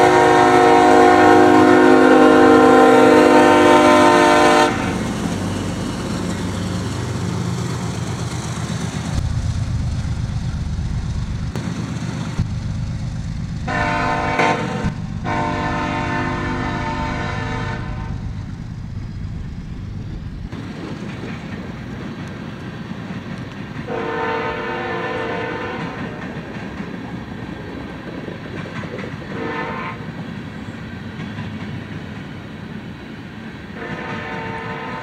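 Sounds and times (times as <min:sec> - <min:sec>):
locomotive horn blasts: 0:00.0 - 0:05.0, 0:13.7 - 0:18.4, 0:23.9 - 0:26.2, 0:29.3 - 0:30.1, 0:33.8 - 0:35.0
freight train rumble and wheel clatter: 0:00.0 - 0:35.0.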